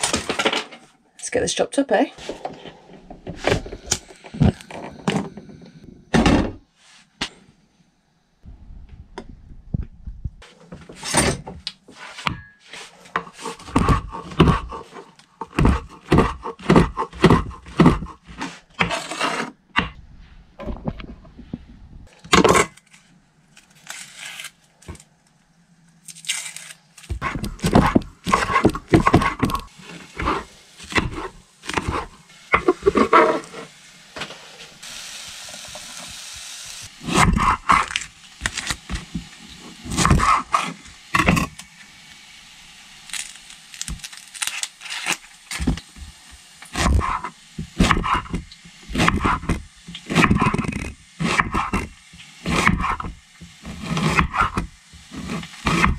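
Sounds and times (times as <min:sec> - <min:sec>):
knife slicing onion: 0:12.9 - 0:19.9, 0:27.0 - 0:33.6, 0:37.0 - 0:39.1, 0:39.8 - 0:41.5, 0:46.7 - 0:55.9
knife chopping on wooden board: 0:13.5 - 0:14.8, 0:15.4 - 0:18.2, 0:27.2 - 0:29.6, 0:46.8 - 0:53.1, 0:53.7 - 0:55.9.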